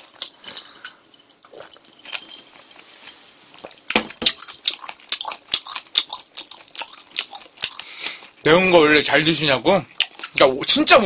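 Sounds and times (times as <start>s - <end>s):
chewing smacks and clicks: 3.6s - 8.2s, 9.9s - 10.8s.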